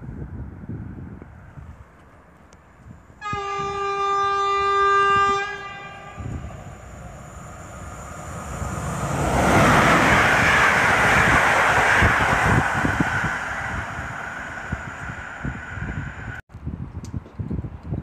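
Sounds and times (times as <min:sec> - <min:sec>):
locomotive horn blast: 0:03.2 - 0:06.4
rush of train wheels on rails: 0:05.1 - 0:16.4.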